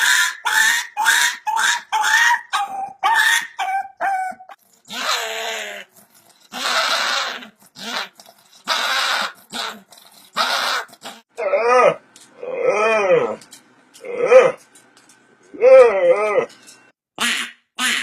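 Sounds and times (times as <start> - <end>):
dog high-pitched cries: 0.0 - 12.0
dog hoarse calls: 0.0 - 13.4, 14.0 - 14.6.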